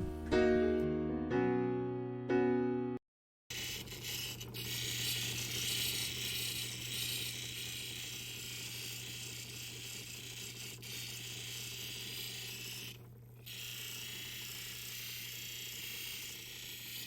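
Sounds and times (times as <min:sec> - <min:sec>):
motor hum: 0:03.5 - 0:17.0
polishing wheel hissing: 0:04.0 - 0:17.0.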